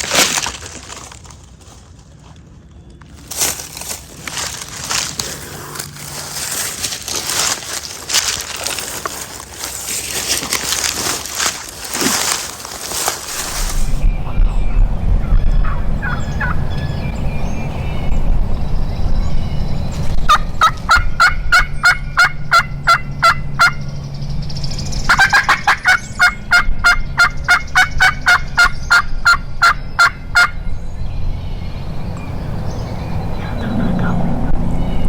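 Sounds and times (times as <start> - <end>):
steady low rumble: 0.0 - 25.2
turkey yelping: 15.6 - 16.6, 20.3 - 23.8, 25.1 - 30.7.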